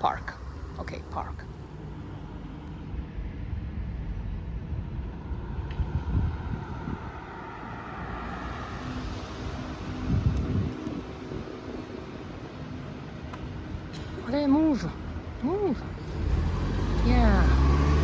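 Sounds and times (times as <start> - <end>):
street traffic rumble: 0.0 - 18.0
wind buffeting microphone: 1.6 - 18.0.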